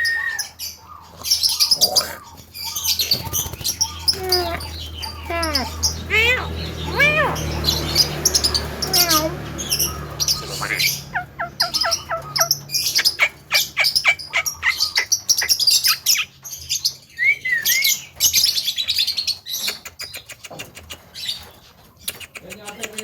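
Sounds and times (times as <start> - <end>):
myna calling: 0.0 - 16.3.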